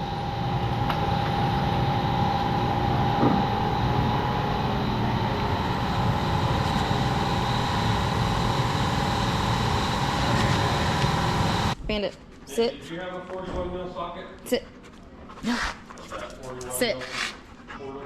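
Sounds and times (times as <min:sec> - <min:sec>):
machine drone with pitched hum: 0:00.0 - 0:11.8.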